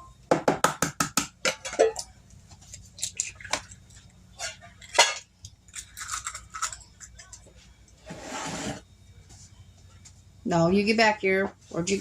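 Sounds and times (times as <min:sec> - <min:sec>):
eggs cracked against a bowl: 0:04.8 - 0:07.4.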